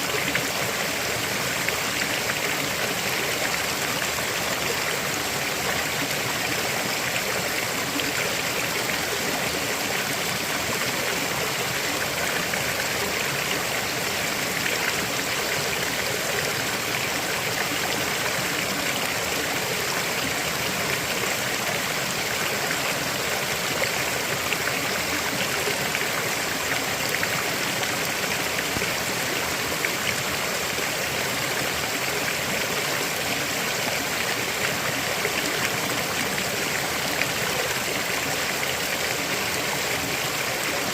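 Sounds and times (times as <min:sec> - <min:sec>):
river water flowing over rocks: 0:00.0 - 0:40.9.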